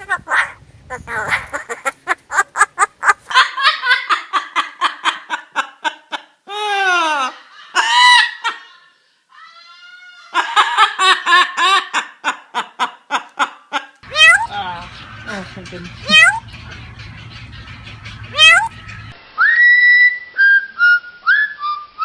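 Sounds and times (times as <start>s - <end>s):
parrot imitating laughter: 0.9s - 8.8s, 10.3s - 14.5s, 16.1s - 16.4s, 18.3s - 18.7s
parrot falling calls: 14.0s - 19.1s.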